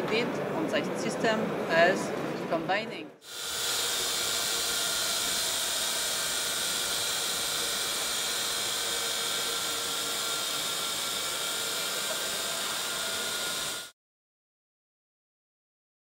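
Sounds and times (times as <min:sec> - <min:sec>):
drone propellers whirring: 0:03.2 - 0:13.9.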